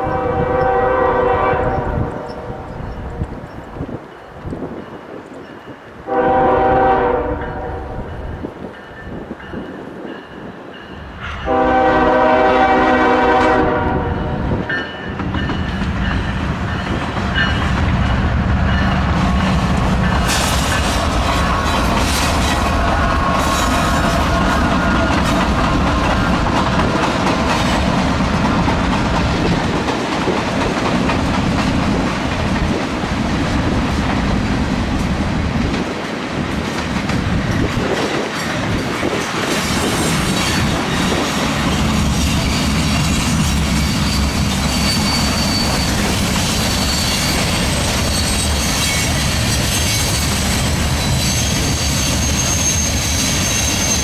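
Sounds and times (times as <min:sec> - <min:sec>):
train rumble: 0:00.0 - 0:54.0
train wheels clacking over rail joints: 0:14.9 - 0:54.0
high-pitched wheel squeal: 0:43.8 - 0:54.0.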